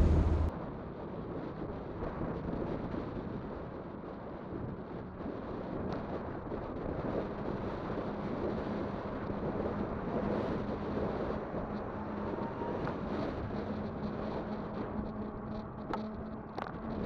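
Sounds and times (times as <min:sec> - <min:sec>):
electric motor hum: 0:00.0 - 0:00.5
wind buffeting microphone: 0:00.0 - 0:17.0.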